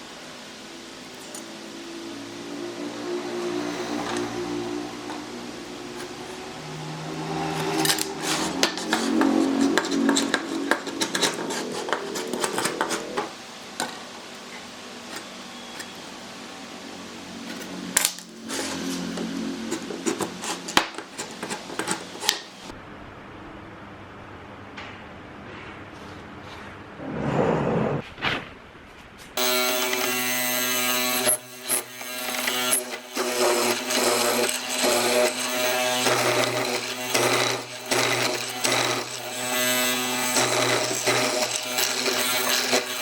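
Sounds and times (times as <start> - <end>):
tools clicking and tapping on wood: 7.5 - 14.1, 17.5 - 22.6
low steady hum: 22.7 - 29.4.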